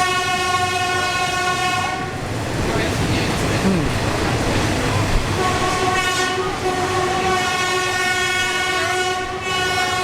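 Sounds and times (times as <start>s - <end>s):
train horn blast: 0.0s - 2.2s, 5.4s - 10.0s
moving train rumble: 0.0s - 10.0s.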